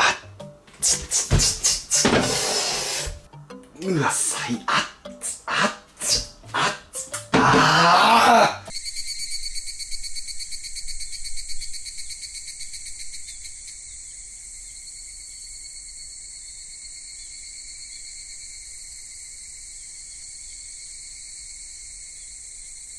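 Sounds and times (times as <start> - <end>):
insects chirping drone: 8.7 - 22.9.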